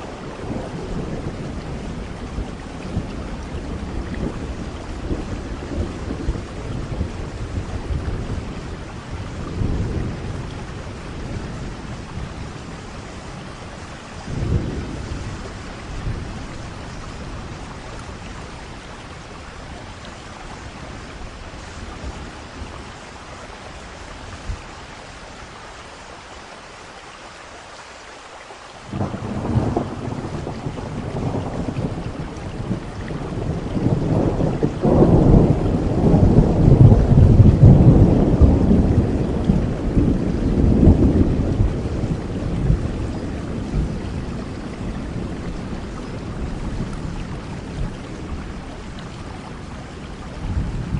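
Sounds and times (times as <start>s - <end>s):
thunder rumbling: 0.0s - 23.1s, 28.9s - 50.9s
steady rain: 0.0s - 50.9s
sharp thunderclap: 28.9s - 44.0s.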